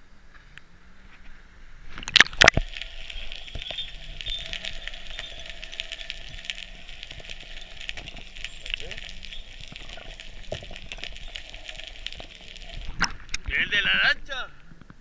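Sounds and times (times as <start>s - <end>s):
water splashing fizzing hiss: 2.0s - 14.0s.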